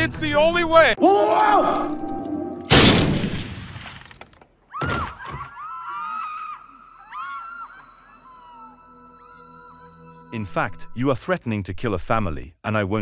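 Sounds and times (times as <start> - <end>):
chirping warbling calls: 6.6 - 10.3.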